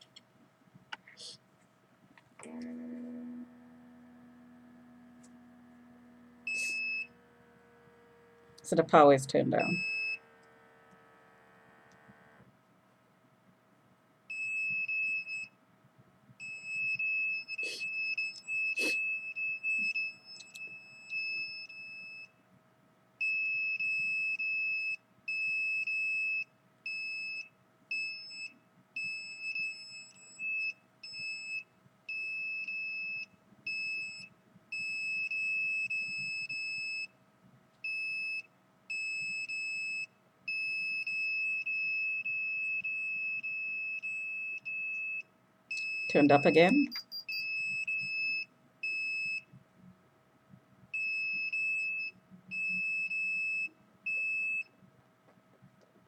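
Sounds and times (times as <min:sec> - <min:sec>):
high-pitched alarm tone: 0:02.4 - 0:12.4, 0:46.1 - 0:47.5.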